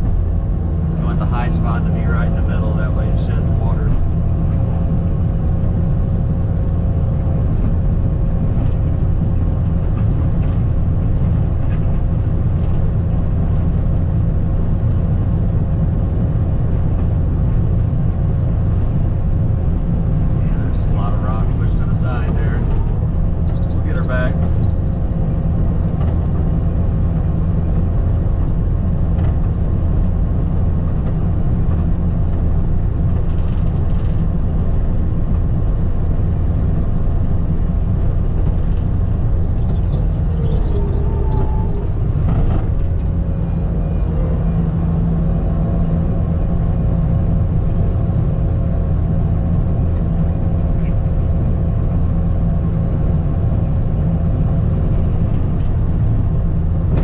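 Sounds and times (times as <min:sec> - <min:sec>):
skid steer engine droning: 0:00.0 - 0:57.0.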